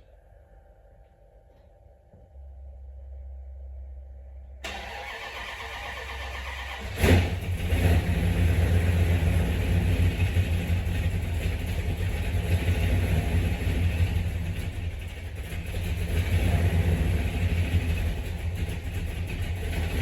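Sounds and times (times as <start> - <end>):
car engine idling: 4.0 - 20.0
car starter cranking: 4.6 - 8.2.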